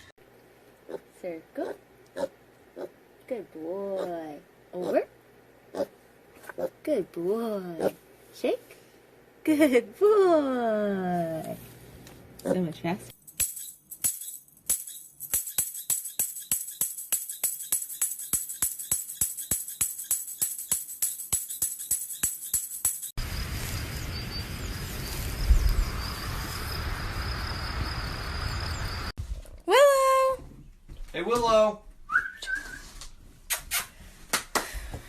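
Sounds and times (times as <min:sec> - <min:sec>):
tambourine jingle beat: 0:13.2 - 0:23.2.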